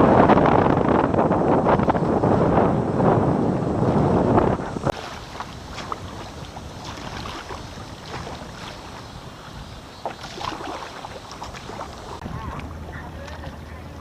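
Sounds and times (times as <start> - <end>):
paddle splashing in water: 3.9 - 14.0
water washing: 4.0 - 14.0.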